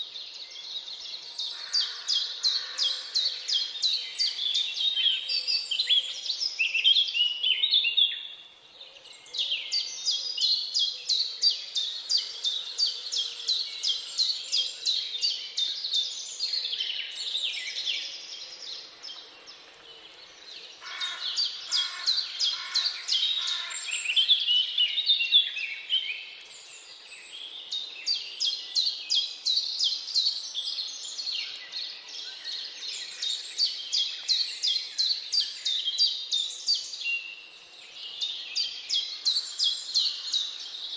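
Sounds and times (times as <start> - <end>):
birds chirping rapidly: 9.8 - 40.9.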